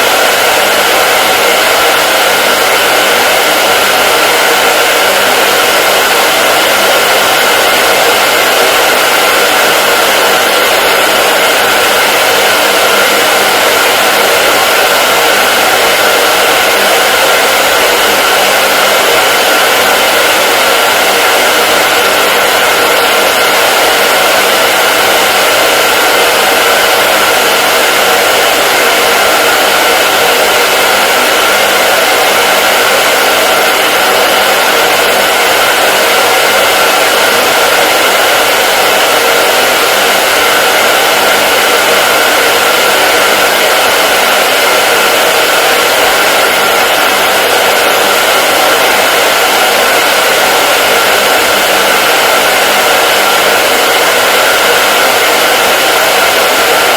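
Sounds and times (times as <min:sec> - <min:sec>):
hair dryer blowing air: 0:00.0 - 0:56.9.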